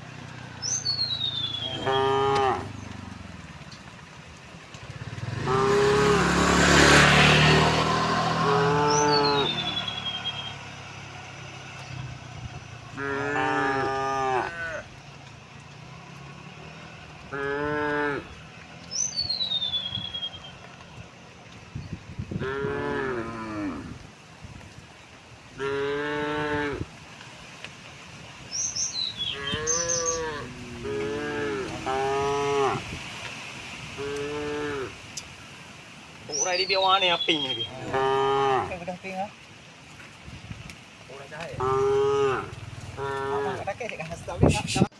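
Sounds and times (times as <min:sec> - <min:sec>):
cattle mooing: 0:01.4 - 0:03.2, 0:05.2 - 0:10.5, 0:12.9 - 0:14.9, 0:17.3 - 0:18.4, 0:22.4 - 0:24.0, 0:25.6 - 0:26.9, 0:29.3 - 0:32.9, 0:34.0 - 0:35.0, 0:37.4 - 0:39.0, 0:41.4 - 0:43.8.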